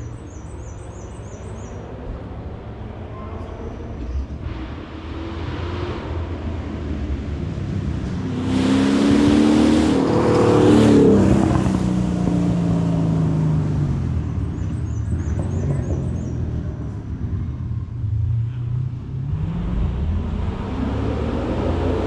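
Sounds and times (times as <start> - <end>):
race car accelerating past: 3.1 - 17.1, 18.4 - 22.0.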